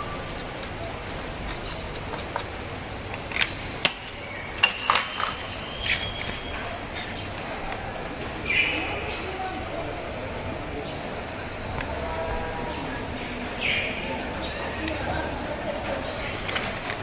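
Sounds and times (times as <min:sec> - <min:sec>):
workshop hum: 0:00.0 - 0:08.5.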